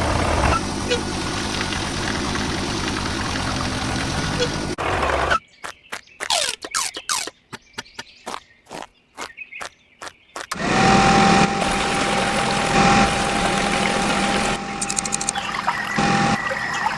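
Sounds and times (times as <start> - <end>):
water pump motor whine: 0.0 - 5.0, 10.5 - 16.9
rushing pouring water: 0.0 - 5.1, 10.6 - 16.9
sharp clicks: 5.6 - 10.6, 14.8 - 15.5.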